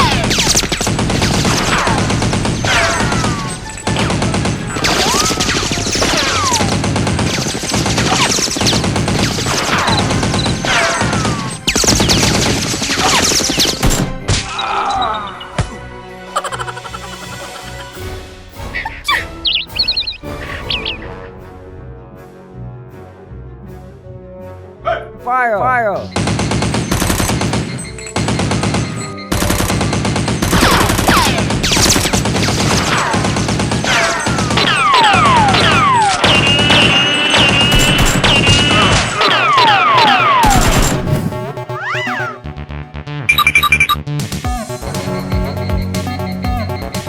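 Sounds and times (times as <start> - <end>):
rapid gunfire: 0.0 - 14.4, 26.2 - 41.6
falling whistling tones: 35.0 - 40.4.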